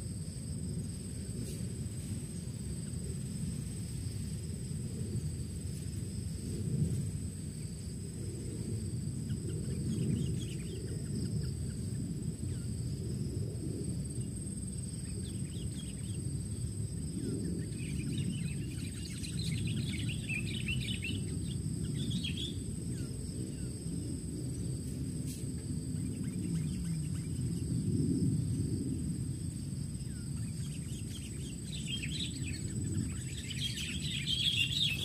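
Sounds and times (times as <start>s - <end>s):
high insect drone: 0.0s - 35.0s
birds chirping: 14.8s - 23.2s, 30.0s - 35.0s.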